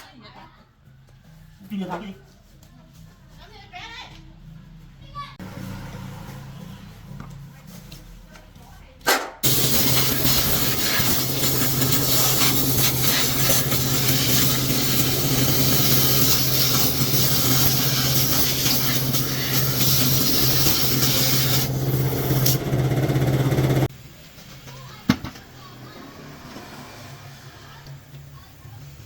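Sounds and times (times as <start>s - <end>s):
power tool grinding: 9.4s - 23.9s.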